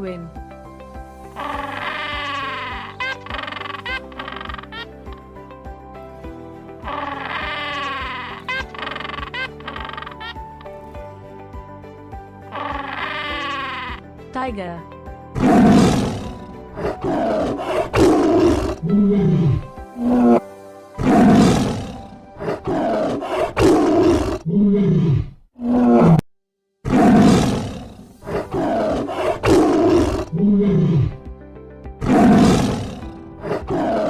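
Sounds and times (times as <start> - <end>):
tiger growling: 15.4 - 20.4, 21.0 - 26.2, 26.8 - 31.2, 32.0 - 34.0
tiger roaring: 15.4 - 20.4, 21.0 - 26.2, 26.8 - 31.2, 32.0 - 34.0.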